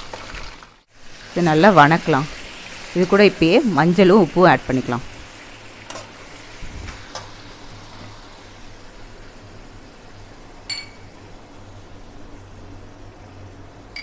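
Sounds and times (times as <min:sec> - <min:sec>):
faint background hum: 0:00.0 - 0:14.0
spoon clinking: 0:10.7 - 0:11.1.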